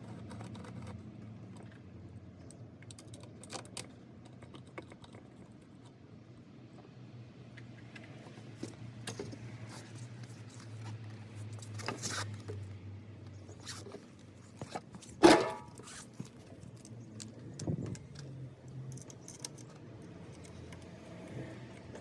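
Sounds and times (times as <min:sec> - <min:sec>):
light clicks of tools: 0:15.8 - 0:22.0.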